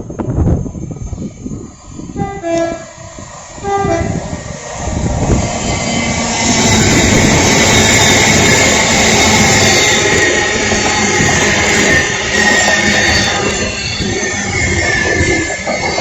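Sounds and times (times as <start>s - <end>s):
train passing at speed: 0.0s - 16.0s
two-tone train horn blast: 2.2s - 3.0s, 3.6s - 4.3s.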